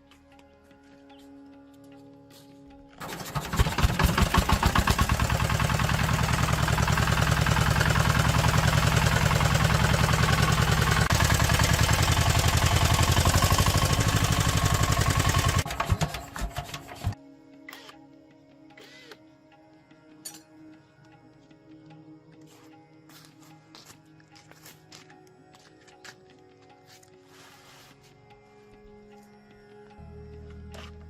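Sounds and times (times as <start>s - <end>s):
diesel engine running: 3.0s - 17.2s.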